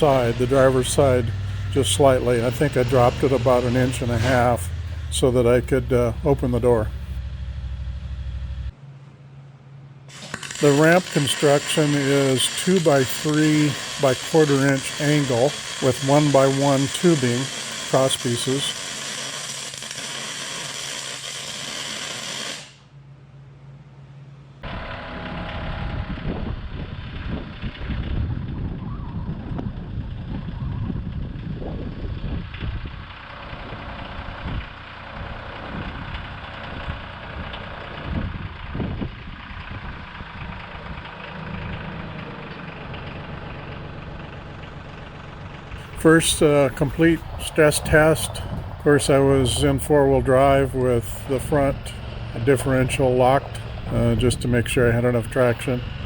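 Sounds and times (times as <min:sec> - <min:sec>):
vehicle engine rumbling: 0:00.0 - 0:20.0, 0:23.5 - 0:56.0
steady hiss: 0:10.1 - 0:22.8.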